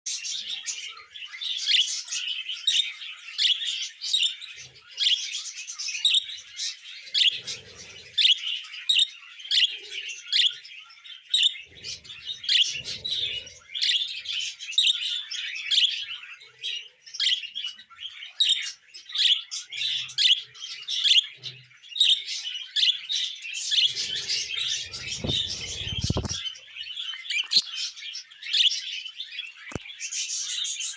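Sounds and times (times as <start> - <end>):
budgerigar chirping and warbling: 11.4 - 16.1, 23.6 - 26.4
low thumps: 24.6 - 26.4.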